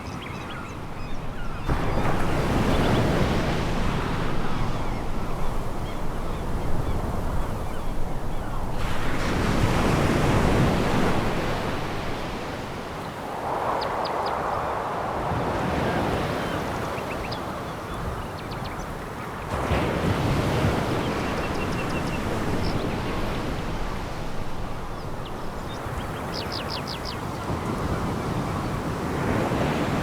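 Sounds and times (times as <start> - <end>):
waves washing on pebble beach: 1.7 - 17.0.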